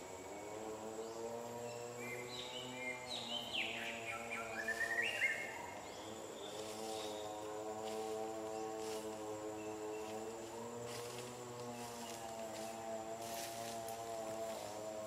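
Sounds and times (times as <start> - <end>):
steady low hum: 0.0 - 15.0
bird whistling: 3.6 - 5.5.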